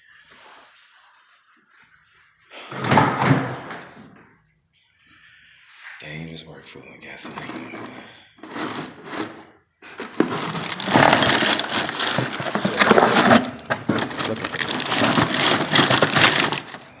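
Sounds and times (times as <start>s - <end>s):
loose hard parts clattering: 7.2s - 17.0s.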